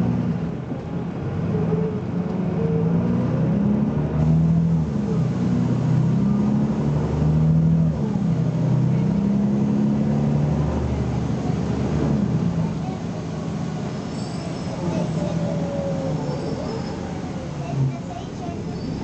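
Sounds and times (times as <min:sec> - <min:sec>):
bus diesel engine accelerating: 0:00.0 - 0:19.0.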